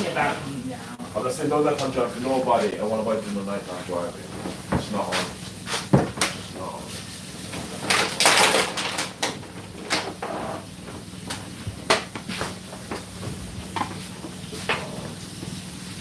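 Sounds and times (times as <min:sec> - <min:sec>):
cupboard doors and dishes clattering: 0:05.8 - 0:06.3.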